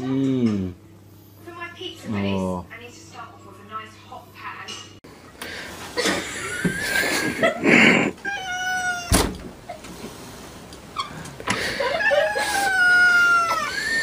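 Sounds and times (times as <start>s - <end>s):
cat meowing: 8.2s - 9.2s, 12.0s - 13.9s.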